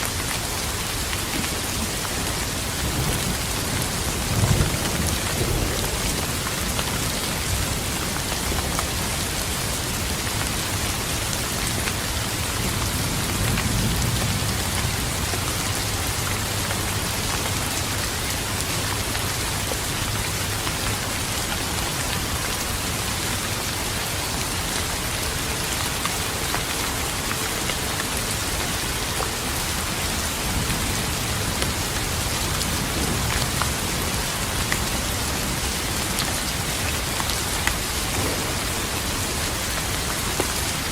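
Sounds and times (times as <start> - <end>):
rain pattering on surfaces: 0.0 - 40.9
distant thunder rumble: 2.6 - 20.5, 37.8 - 40.8.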